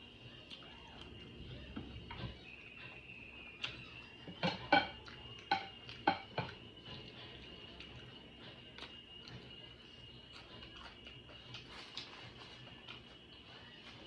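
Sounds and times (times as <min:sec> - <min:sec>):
utensil clinking on a dish: 0:04.4 - 0:06.6.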